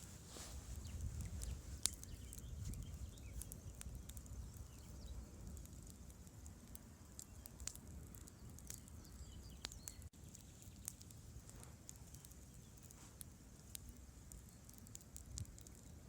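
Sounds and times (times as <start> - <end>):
campfire crackling and popping: 0.0 - 16.0.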